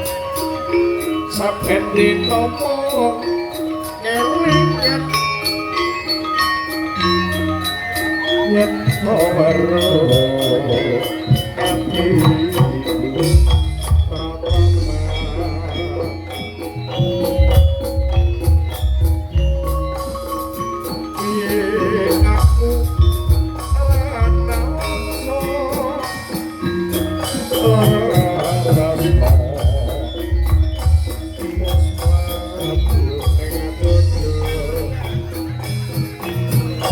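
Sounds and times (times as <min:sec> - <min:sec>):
drums: 0:00.0 - 0:36.9
jingling percussion: 0:00.0 - 0:36.9
mallet instruments: 0:00.0 - 0:36.9
heavy bass: 0:11.8 - 0:16.3, 0:26.7 - 0:36.9.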